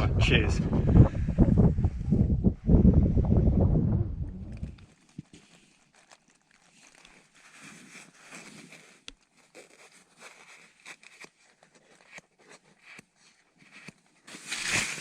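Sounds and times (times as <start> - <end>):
faint rustling: 4.3 - 15.0.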